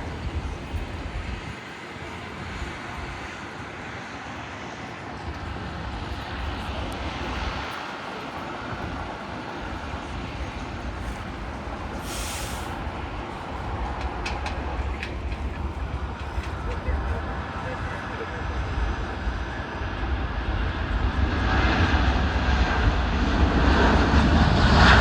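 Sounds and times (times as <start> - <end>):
jet engines rumbling: 0.0 - 25.0
brief hiss: 12.0 - 12.8.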